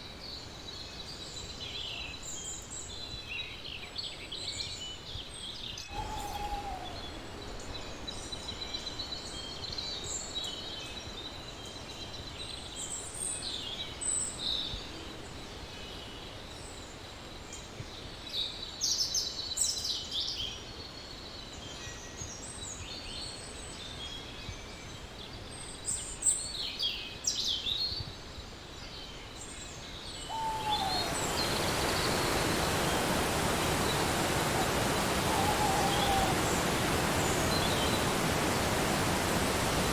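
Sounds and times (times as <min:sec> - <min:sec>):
outdoor background noise: 0:00.0 - 0:39.9
small birds chirping: 0:30.0 - 0:39.9
even rushing noise: 0:30.3 - 0:39.9.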